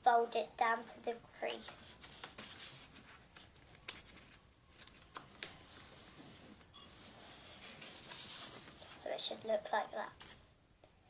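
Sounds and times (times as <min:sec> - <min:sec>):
paper rustling and crackling: 0:01.5 - 0:09.4.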